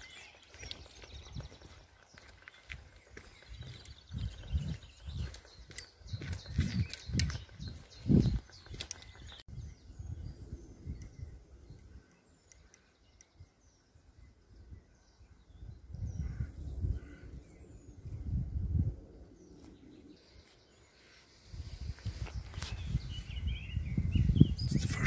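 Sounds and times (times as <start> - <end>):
small birds chirping: 0.0 - 25.0
low rumble on microphone: 3.3 - 12.0, 15.5 - 20.2, 21.5 - 25.0.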